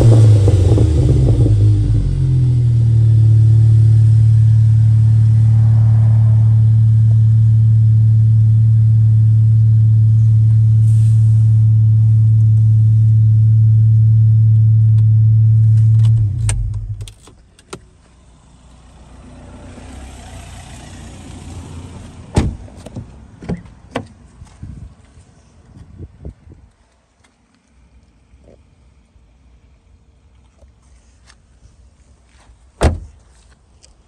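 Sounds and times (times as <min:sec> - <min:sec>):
car engine idling drone: 0:00.0 - 0:22.4.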